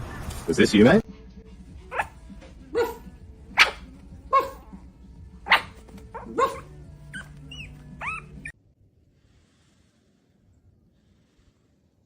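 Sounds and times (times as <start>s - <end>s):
soft high-pitched dog calls: 1.9s - 4.9s, 5.5s - 8.5s
dog barking: 1.9s - 8.5s.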